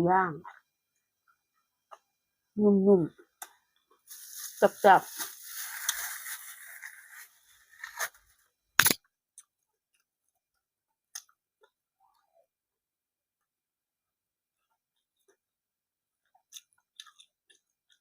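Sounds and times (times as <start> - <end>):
sharp click: 8.8 - 9.0
person chewing crunchy food: 16.2 - 18.0.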